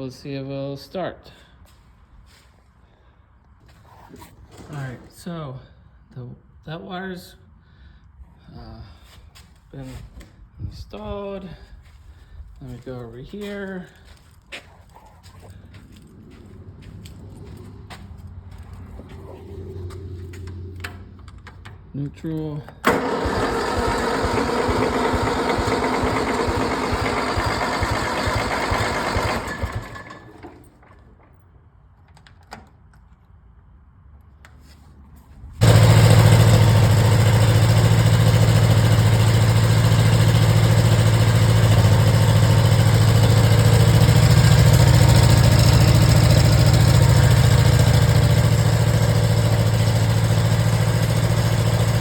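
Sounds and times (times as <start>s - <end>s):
tractor engine idling: 22.4s - 31.2s, 35.6s - 52.0s
engine starting: 22.7s - 31.4s.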